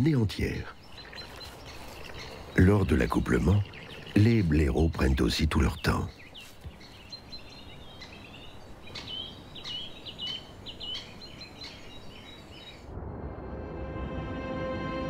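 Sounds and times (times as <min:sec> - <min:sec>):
bird singing: 0:00.0 - 0:13.0
soft forest hush: 0:00.0 - 0:15.0
music: 0:13.0 - 0:15.0.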